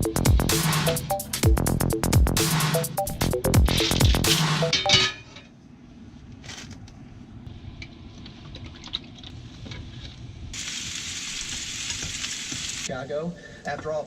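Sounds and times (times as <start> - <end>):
music track: 0.0 - 5.0
pots and pans clinking: 4.6 - 5.5.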